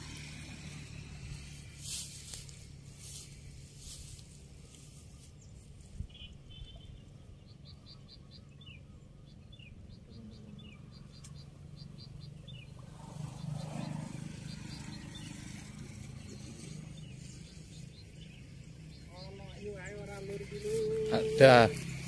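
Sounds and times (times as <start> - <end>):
small bird chirping: 4.8 - 22.0.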